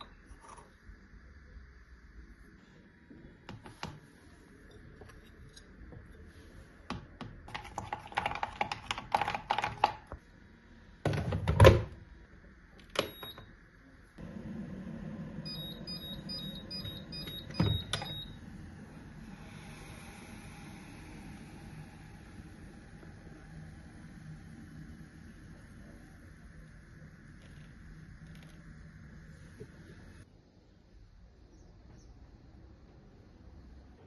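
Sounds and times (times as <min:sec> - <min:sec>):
steady low hum: 0:11.9 - 0:31.4
high electronic beeps: 0:15.5 - 0:18.4.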